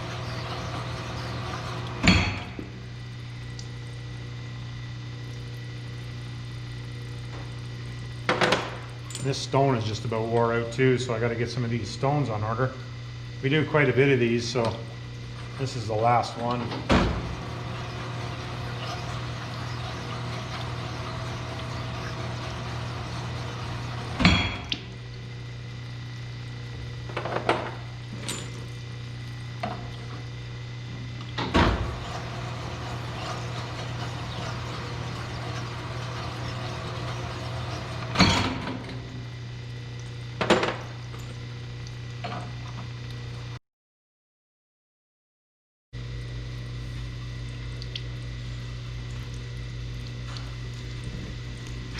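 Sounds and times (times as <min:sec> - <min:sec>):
honing machine humming: 0:00.0 - 0:02.6, 0:13.8 - 0:24.6, 0:31.8 - 0:39.0.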